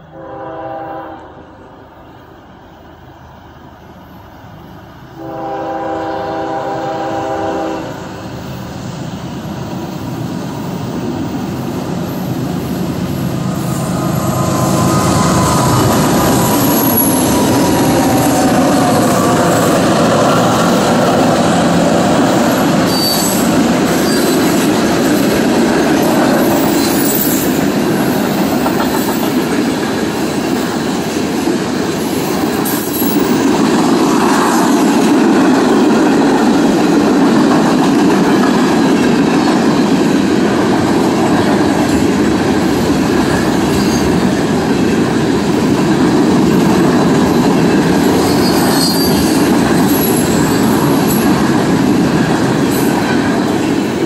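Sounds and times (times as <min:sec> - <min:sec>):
freight train wheels rumbling: 0:00.0 - 0:54.0
high-pitched wheel squeals: 0:22.8 - 0:24.4, 0:26.6 - 0:27.6, 0:48.2 - 0:51.2.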